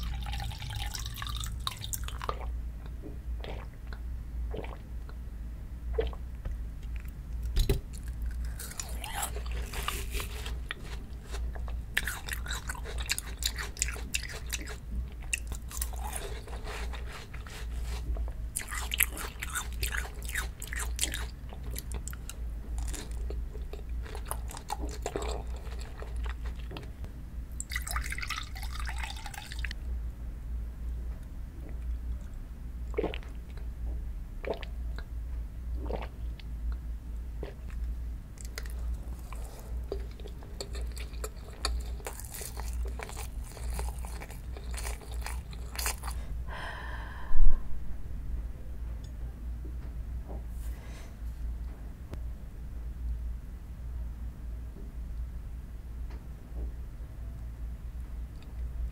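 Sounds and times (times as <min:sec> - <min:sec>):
chewing fruit: 0:07.9 - 0:26.9, 0:37.4 - 0:46.3
low hum: 0:42.6 - 0:58.9.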